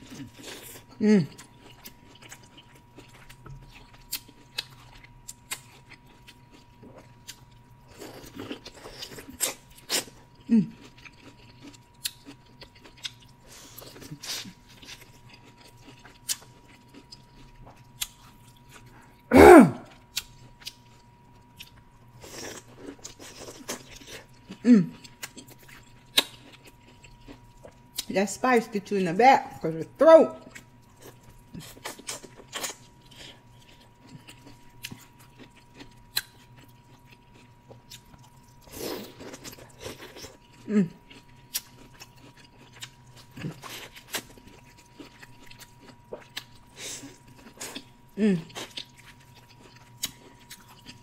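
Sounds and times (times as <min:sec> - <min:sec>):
biting and chewing corn: 0:00.0 - 0:19.0, 0:19.9 - 0:28.1, 0:30.5 - 0:51.0
short vocal sounds: 0:19.3 - 0:19.9.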